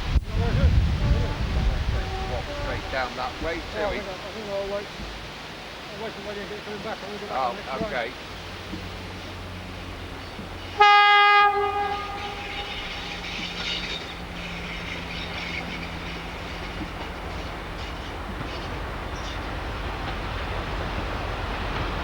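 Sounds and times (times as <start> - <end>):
train horn blast: 0.0 - 4.1, 10.6 - 19.3
train rumbling: 0.0 - 22.0.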